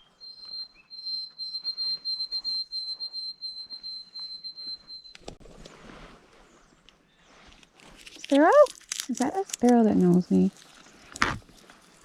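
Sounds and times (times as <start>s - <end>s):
sparrow singing: 0.0s - 5.2s.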